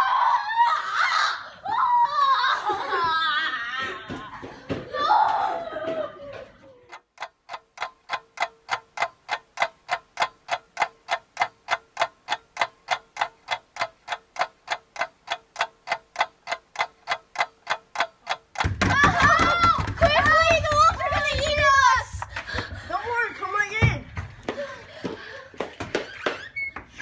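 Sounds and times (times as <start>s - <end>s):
clock ticking: 6.9s - 25.4s.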